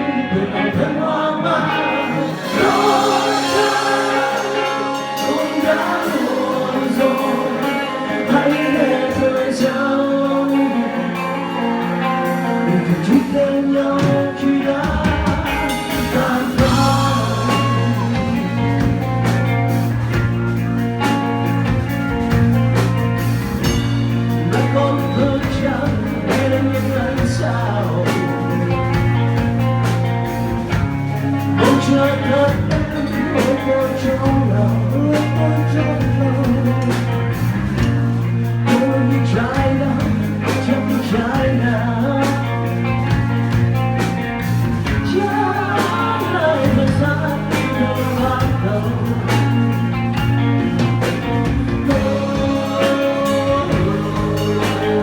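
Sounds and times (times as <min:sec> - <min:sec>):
person singing: 0:00.0 - 0:19.0, 0:24.3 - 0:29.5, 0:45.0 - 0:49.9, 0:51.7 - 0:55.0
drums: 0:00.0 - 0:55.0
electric guitar: 0:00.0 - 0:55.0
rock music: 0:00.0 - 0:55.0.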